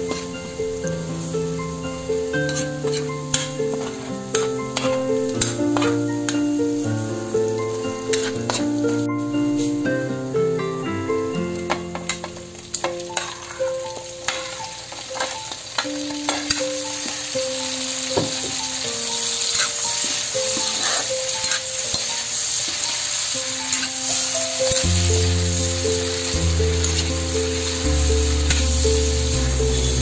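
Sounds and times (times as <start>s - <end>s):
background music: 0.0s - 30.0s
shrimp sizzling in butter: 0.0s - 30.0s
spatula scraping a pan: 2.4s - 6.1s, 8.1s - 8.7s, 13.1s - 13.6s, 19.5s - 22.1s.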